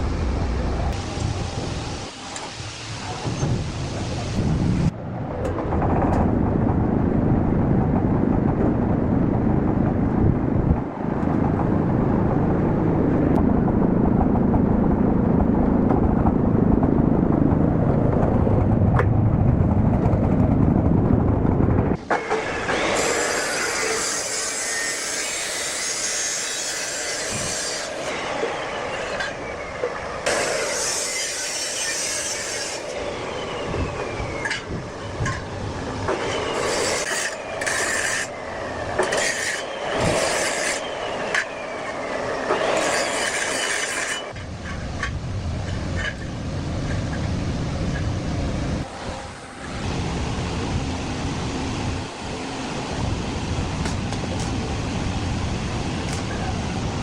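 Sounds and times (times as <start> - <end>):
low rumble: 0.0 - 2.1, 3.1 - 22.0
rasping scraping: 42.5 - 44.8.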